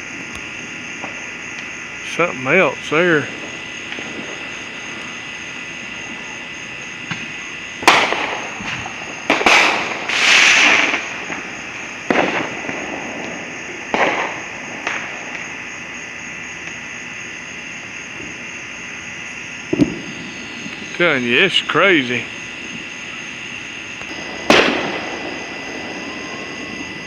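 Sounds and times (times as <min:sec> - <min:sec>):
firework rushing burst: 0:02.0 - 0:15.7, 0:19.6 - 0:27.0
fireworks bangs: 0:02.0 - 0:16.7, 0:18.1 - 0:27.0.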